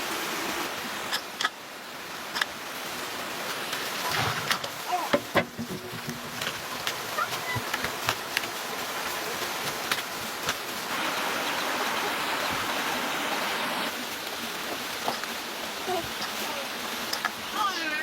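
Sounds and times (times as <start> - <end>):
rushing water: 0.0 - 18.0.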